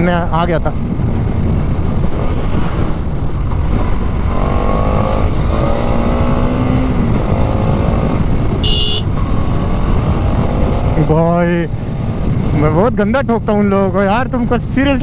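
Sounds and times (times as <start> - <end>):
wind rush on microphone: 0.0 - 15.0
motorcycle engine running: 1.1 - 12.8
horn beep: 8.6 - 9.1.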